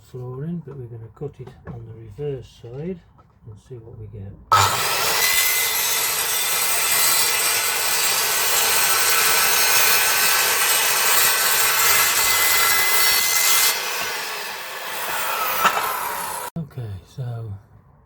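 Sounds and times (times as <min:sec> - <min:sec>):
circular saw cutting: 0:04.5 - 0:16.5.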